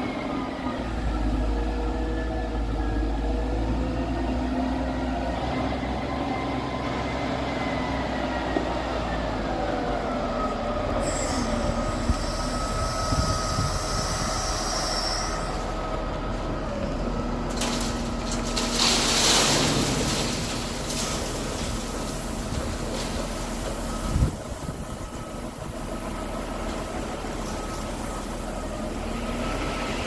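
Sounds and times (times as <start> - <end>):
high squeal: 11.0 - 15.8.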